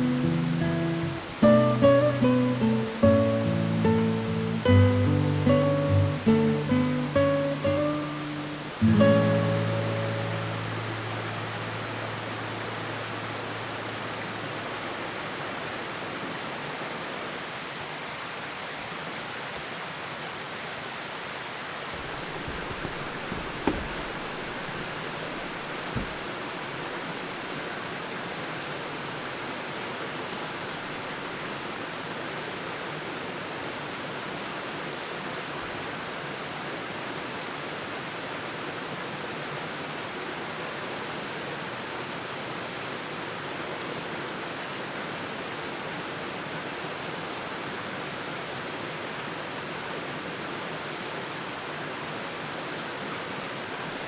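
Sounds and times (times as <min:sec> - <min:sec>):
steady water-like rushing: 0:05.2 - 0:38.4
short knocks: 0:22.0 - 0:26.3.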